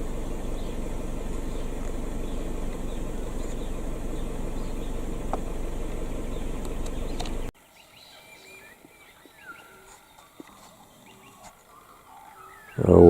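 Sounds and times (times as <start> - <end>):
loud rumbling noise: 0.0 - 7.5
faint bird calls: 0.0 - 13.0.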